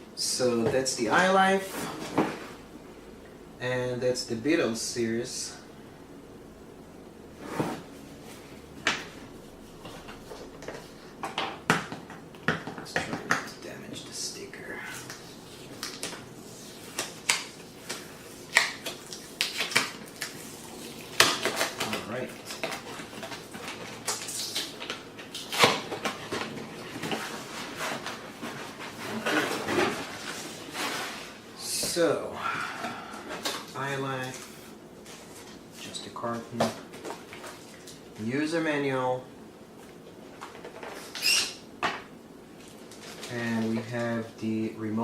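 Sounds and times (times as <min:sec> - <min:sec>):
cardboard rustling: 0:19.5 - 0:31.4.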